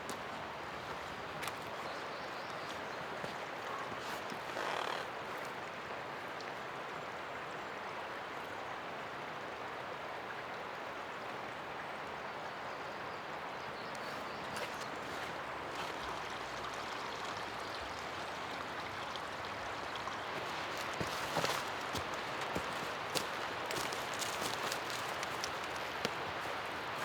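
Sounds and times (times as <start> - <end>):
river rushing: 2.7 - 6.2.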